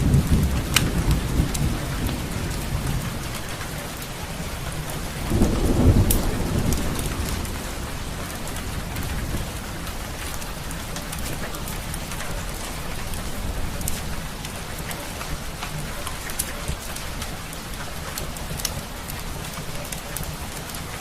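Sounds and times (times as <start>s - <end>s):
steady rain: 0.0s - 21.0s
fireplace crackling: 6.1s - 21.0s.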